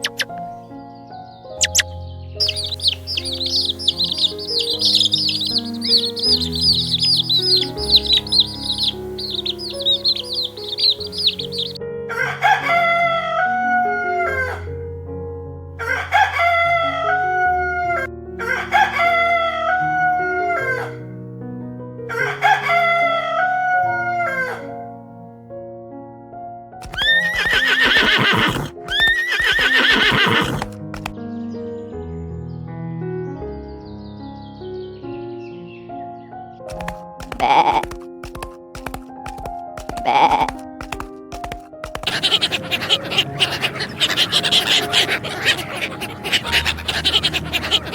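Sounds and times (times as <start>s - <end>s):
harsh raspy animal calls: 1.6s - 11.8s, 26.8s - 31.1s, 36.7s - 47.9s
rooster crowing: 7.9s - 14.7s, 15.8s - 21.0s, 22.1s - 24.6s.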